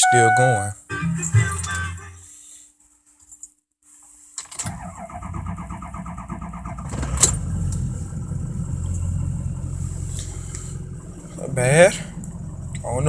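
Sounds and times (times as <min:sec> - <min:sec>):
starter motor cranking: 0:04.6 - 0:13.0
diesel engine firing and idling: 0:04.7 - 0:13.0.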